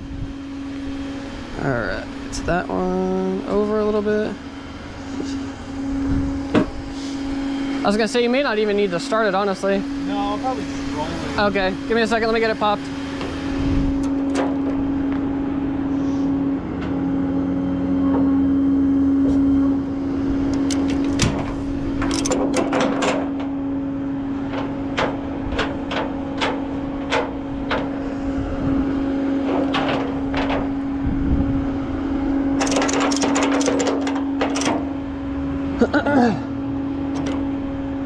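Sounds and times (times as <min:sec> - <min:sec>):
steady motor hum: 0:00.0 - 0:38.0
sharp clicks and clanks: 0:14.0 - 0:14.9, 0:20.5 - 0:23.6, 0:24.4 - 0:28.0, 0:29.4 - 0:30.8, 0:32.6 - 0:35.0, 0:37.1 - 0:37.6.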